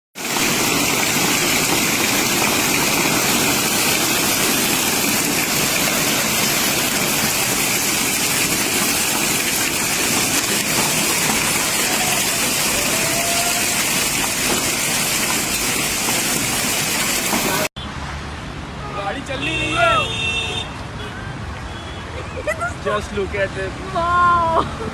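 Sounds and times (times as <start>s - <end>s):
heavy rain and hail striking: 0.2s - 17.7s.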